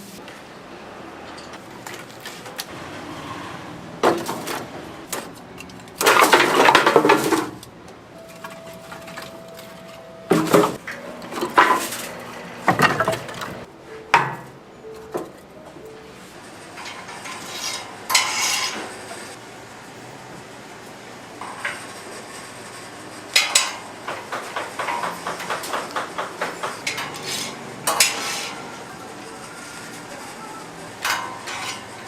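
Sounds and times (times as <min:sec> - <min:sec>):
dishes and pans clattering: 0:04.0 - 0:07.6, 0:08.2 - 0:15.4, 0:16.7 - 0:19.3, 0:23.4 - 0:28.7, 0:31.0 - 0:32.0.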